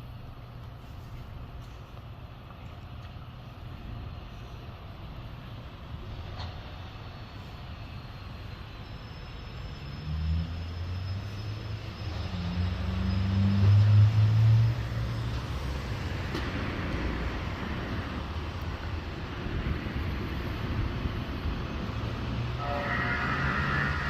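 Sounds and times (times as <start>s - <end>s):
vehicle engine and road noise: 9.8s - 24.0s
deep low drone: 21.8s - 24.0s.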